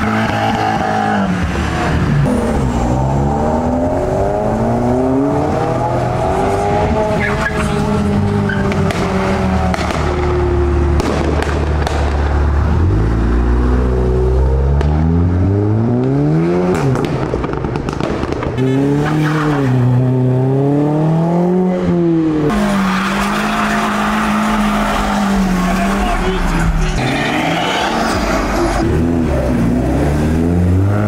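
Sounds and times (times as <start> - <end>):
car engines revving: 0.0 - 31.0
sharp exhaust pops: 11.0 - 12.3.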